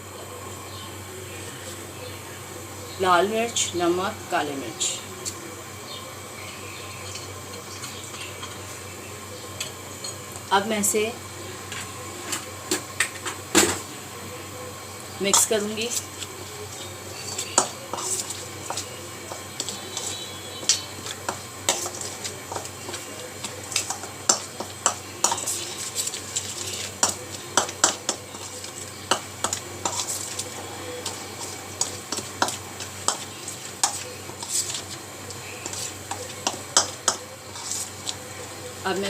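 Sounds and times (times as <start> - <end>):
utensil scraping a bowl: 17.2 - 38.2.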